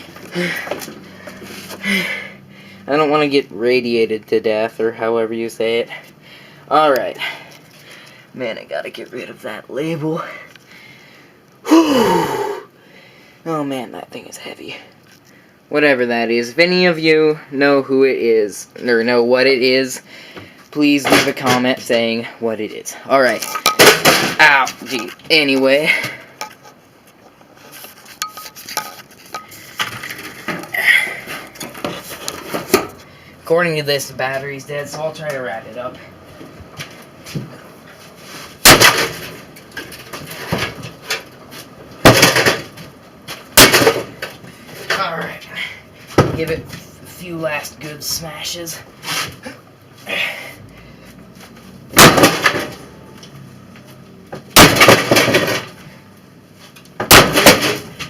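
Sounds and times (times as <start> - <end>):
broken metal parts clinking: 23.3 - 25.2, 28.0 - 30.7
sledgehammer hitting microwave: 52.0 - 52.7, 54.6 - 55.6, 57.0 - 57.9.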